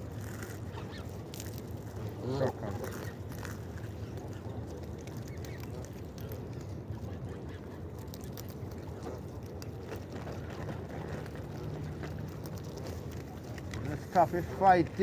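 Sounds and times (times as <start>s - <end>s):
low steady rumble: 0.0s - 15.0s
waterfowl calling and squabbling: 0.4s - 1.2s.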